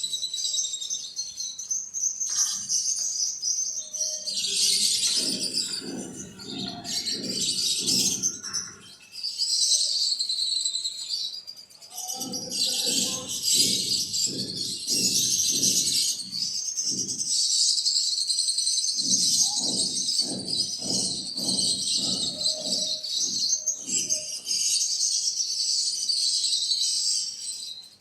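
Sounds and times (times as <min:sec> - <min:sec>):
small birds chirping: 0:00.0 - 0:28.0
low rhythmic shuffling: 0:04.4 - 0:09.0.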